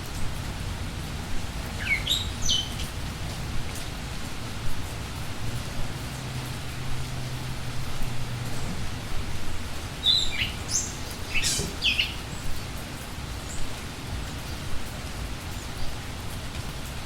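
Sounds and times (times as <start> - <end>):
rain falling: 0.0 - 17.0
high bird chirps: 10.0 - 12.2.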